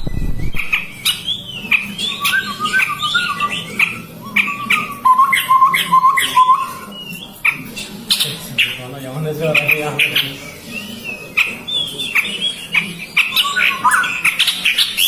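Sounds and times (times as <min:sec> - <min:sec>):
birds scratchy chirps: 0:00.0 - 0:15.0.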